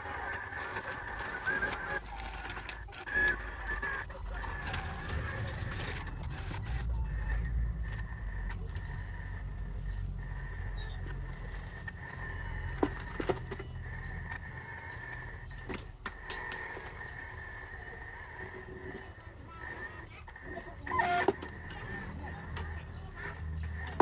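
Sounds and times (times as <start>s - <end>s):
electric motor and gear whine: 0.0s - 24.0s
low rumble: 4.0s - 16.0s.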